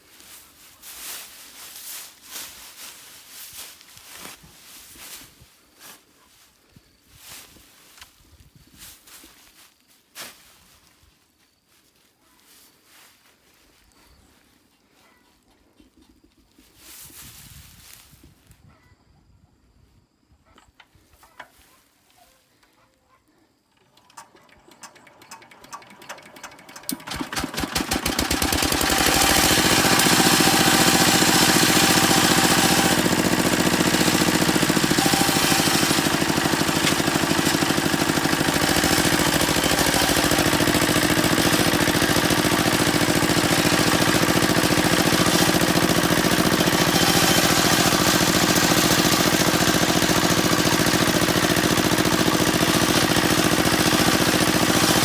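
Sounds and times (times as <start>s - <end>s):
small engine starting up: 23.7s - 55.0s.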